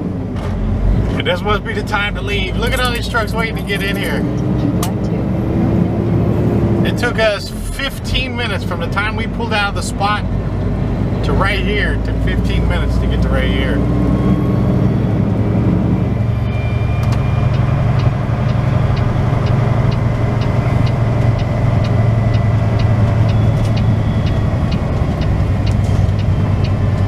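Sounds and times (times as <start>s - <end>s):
diesel engine low hum: 0.0s - 27.0s
light regular ticking: 17.4s - 27.0s.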